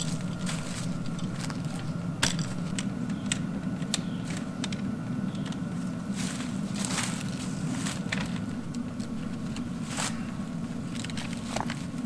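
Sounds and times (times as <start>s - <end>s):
faint steady whine: 0.0s - 12.0s
low mechanical hum: 0.0s - 12.0s.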